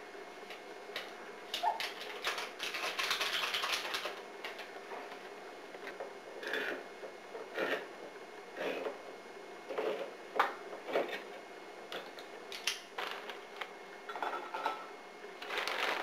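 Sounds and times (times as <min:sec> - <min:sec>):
utensils clattering against bowl: 0:14.1 - 0:14.9.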